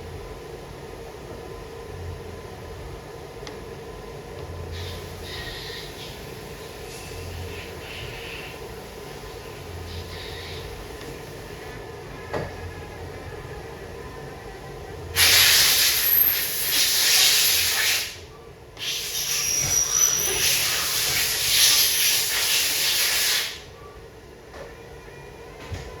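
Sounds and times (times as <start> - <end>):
long hissing blasts: 15.2 - 18.2, 18.8 - 23.7.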